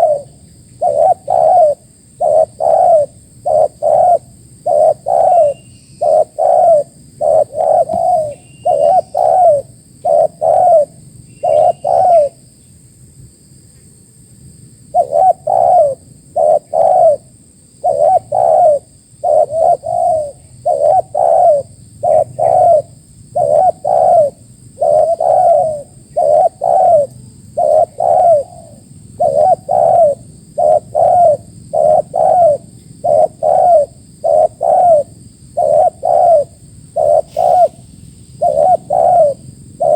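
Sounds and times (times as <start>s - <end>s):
dove cooing: 0.0s - 12.4s, 14.9s - 39.9s.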